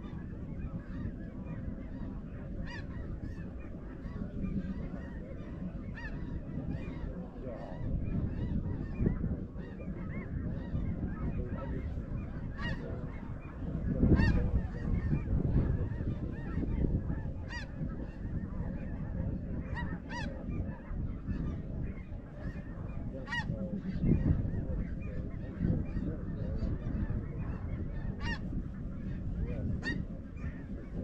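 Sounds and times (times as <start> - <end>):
geese yelping: 0.0 - 31.0.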